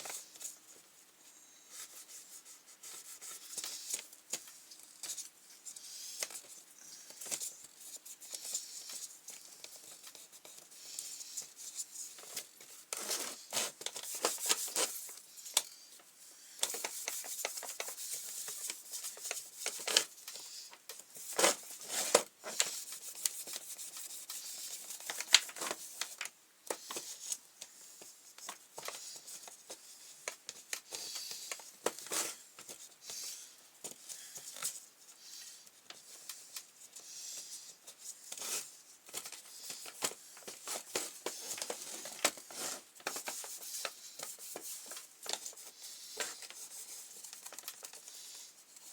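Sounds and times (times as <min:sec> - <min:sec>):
small clicks and knocks of parts: 0:38.3 - 0:46.6, 0:47.2 - 0:48.9.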